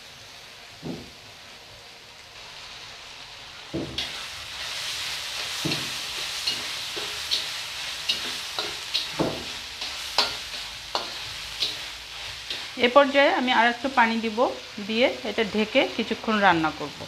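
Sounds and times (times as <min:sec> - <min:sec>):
food sizzling in a wok: 0:00.0 - 0:17.0
spatula scraping and knocking pan: 0:05.4 - 0:12.8.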